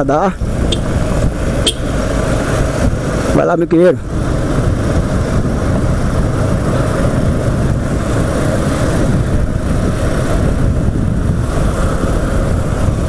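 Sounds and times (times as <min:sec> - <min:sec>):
road and wind noise: 0:00.0 - 0:13.0
motorcycle engine running: 0:00.4 - 0:02.8.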